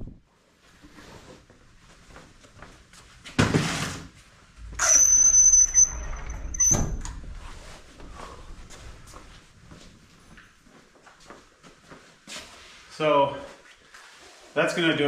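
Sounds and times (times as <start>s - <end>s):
high-pitched squeak: 4.8s - 7.1s.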